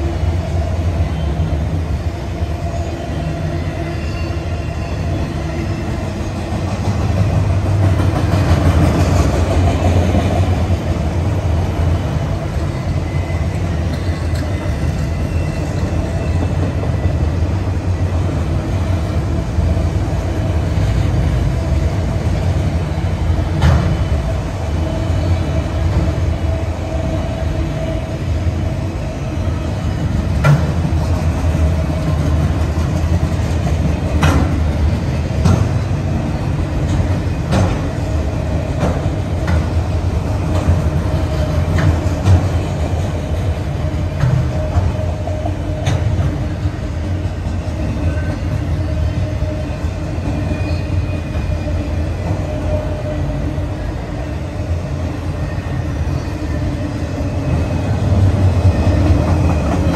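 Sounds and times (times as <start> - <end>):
train wheels rumbling on rail: 0.0 - 59.9
wheels clicking over rail joints: 30.2 - 46.6
faint wheel squeal: 47.8 - 53.5.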